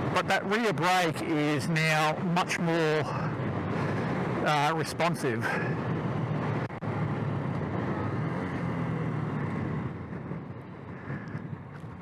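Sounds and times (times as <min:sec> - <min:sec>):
wind and road noise: 0:00.0 - 0:12.0
motorcycle engine running: 0:05.5 - 0:12.0.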